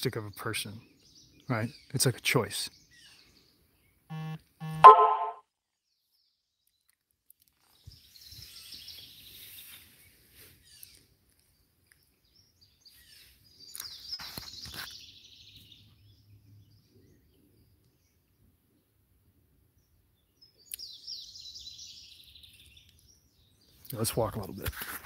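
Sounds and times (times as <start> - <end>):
birds singing and calling: 0.0 - 4.1, 10.6 - 18.2, 19.8 - 24.6.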